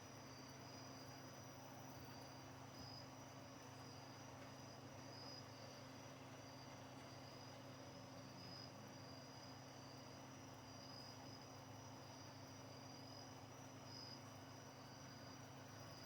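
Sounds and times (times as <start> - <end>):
crickets trilling: 8.2 - 16.0.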